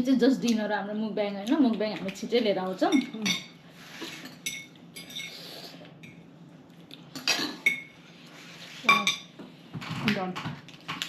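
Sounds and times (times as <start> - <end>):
cutlery clinking against dishes: 8.9 - 9.3.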